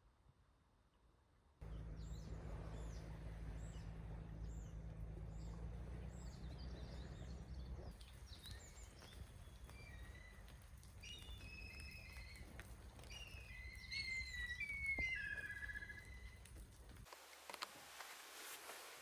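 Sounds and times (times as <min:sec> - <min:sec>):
birds chirping: 0:01.6 - 0:16.5.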